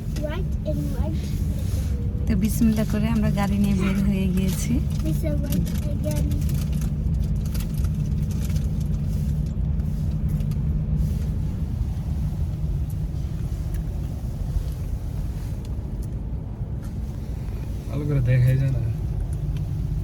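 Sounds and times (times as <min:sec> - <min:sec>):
car cabin road rumble: 0:00.0 - 0:20.0.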